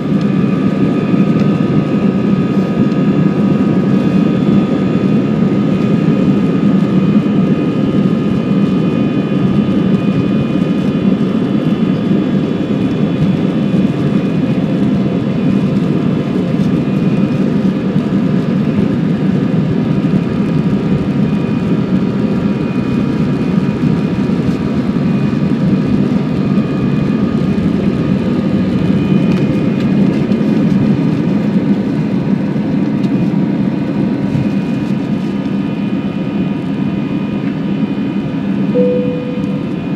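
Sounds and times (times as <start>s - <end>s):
high whining tones: 38.8s - 39.9s.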